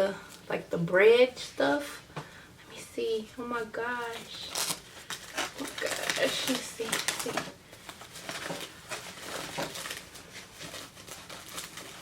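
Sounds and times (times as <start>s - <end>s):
food packaging crinkling: 4.1s - 12.0s.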